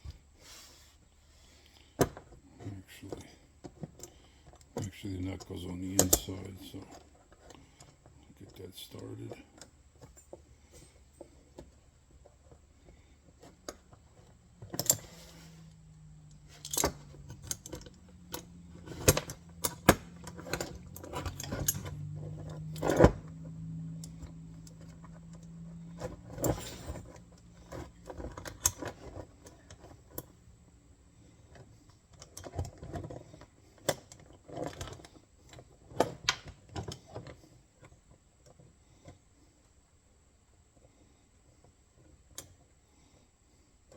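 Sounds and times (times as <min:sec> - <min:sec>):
low steady hum: 0:00.0 - 0:43.9
metal parts clinking and rattling: 0:13.4 - 0:23.4, 0:24.0 - 0:30.3.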